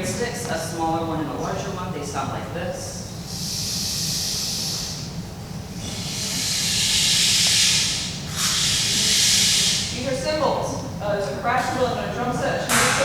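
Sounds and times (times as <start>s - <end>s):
rain stick pellets hissing: 5.9s - 10.0s.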